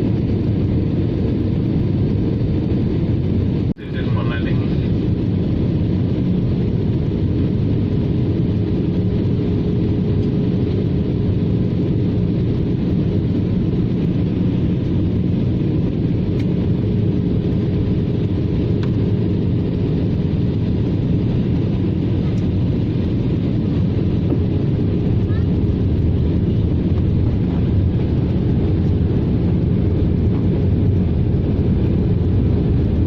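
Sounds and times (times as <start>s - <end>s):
jet engines droning: 0.0s - 33.0s
rush of airflow: 11.7s - 33.0s.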